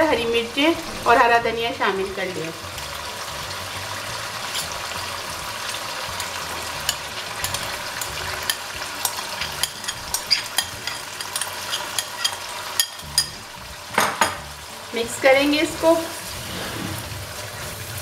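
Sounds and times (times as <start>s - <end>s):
food sizzling in hot oil: 0.0s - 18.0s
oil popping and crackling: 2.1s - 14.7s.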